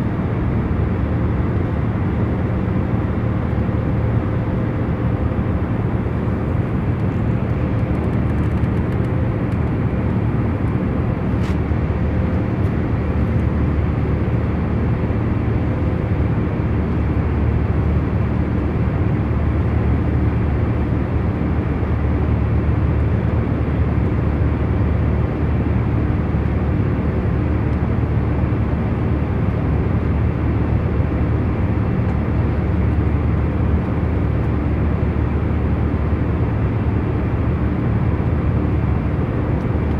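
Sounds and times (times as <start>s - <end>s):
airliner cabin rumble: 0.0s - 39.9s.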